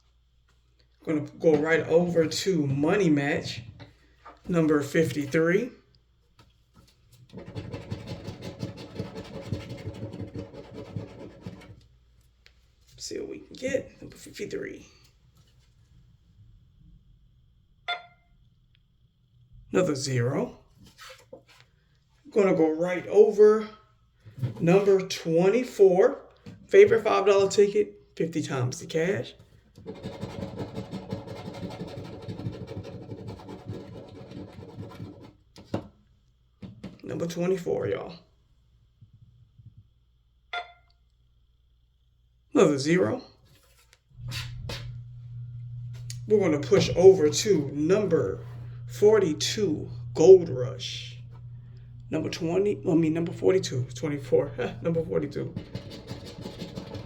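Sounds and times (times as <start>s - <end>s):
coin scratching lottery ticket: 7.3s - 11.7s, 29.8s - 35.4s, 54.0s - 57.0s
coin scraping lottery ticket: 54.6s - 57.0s.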